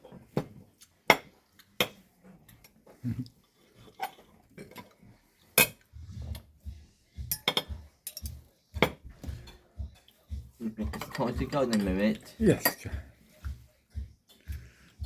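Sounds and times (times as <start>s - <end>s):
cutlery clinking against plates: 3.8s - 5.9s, 7.2s - 10.2s, 10.8s - 13.0s.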